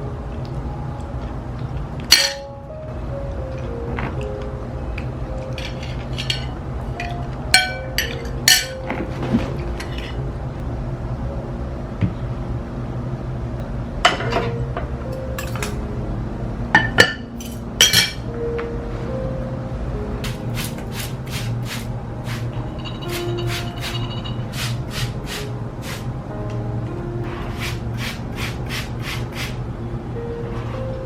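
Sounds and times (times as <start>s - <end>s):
soft background music: 0.0s - 31.0s
dishes and utensils clinking: 2.0s - 2.5s, 5.4s - 10.2s, 14.1s - 14.6s, 15.4s - 15.8s, 16.8s - 18.3s, 22.7s - 24.6s.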